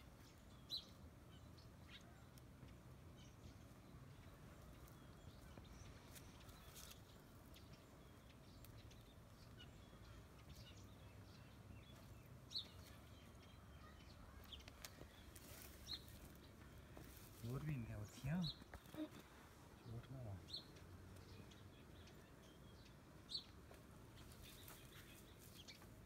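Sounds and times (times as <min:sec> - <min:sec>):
faint bird chirps: 0:00.0 - 0:23.6
dry branches clicking and rustling: 0:06.1 - 0:07.2, 0:14.4 - 0:17.6.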